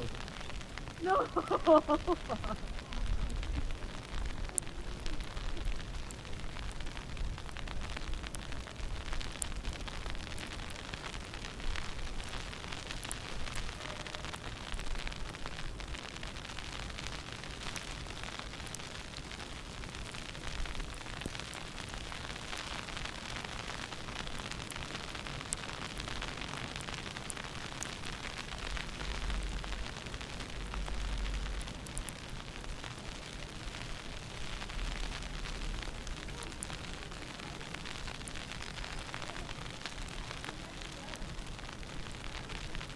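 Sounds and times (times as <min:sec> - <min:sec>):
wind buffeting microphone: 0:00.0 - 0:08.4
faint crackles: 0:00.0 - 0:42.9
steady hiss: 0:00.0 - 0:42.9.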